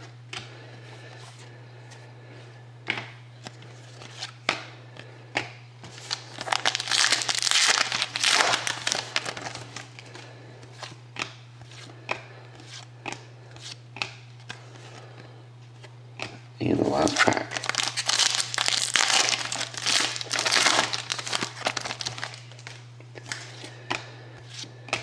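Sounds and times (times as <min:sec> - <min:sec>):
steady low hum: 0:00.0 - 0:25.0
plastic wrapper crinkling and tearing: 0:06.0 - 0:09.9, 0:17.0 - 0:22.8.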